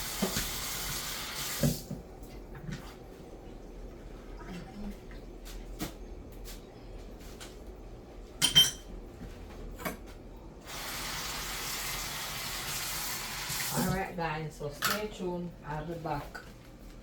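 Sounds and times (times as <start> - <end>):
tap water running: 0.0 - 5.6, 10.6 - 14.2
pots and utensils knocking: 8.4 - 8.9.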